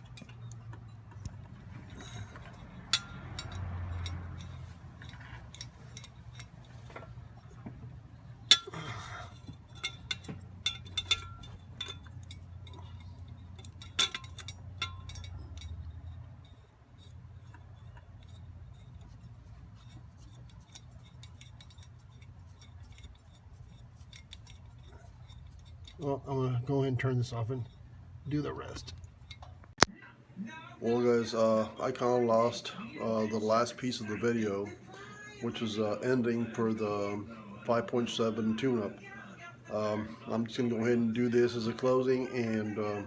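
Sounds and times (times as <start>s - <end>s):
metal tools clinking: 0.0s - 7.6s, 8.2s - 29.6s
steady low hum: 0.0s - 29.9s.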